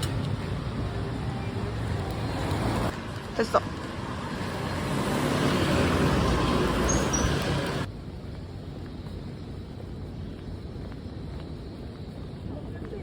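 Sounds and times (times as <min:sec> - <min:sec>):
busy street traffic: 0:00.0 - 0:08.0.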